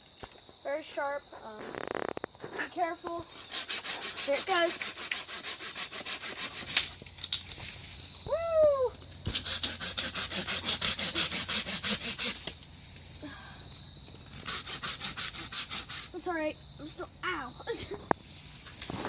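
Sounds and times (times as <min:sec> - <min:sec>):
serrated blade sawing stalk: 0:03.3 - 0:07.0, 0:09.2 - 0:12.6, 0:14.2 - 0:16.2.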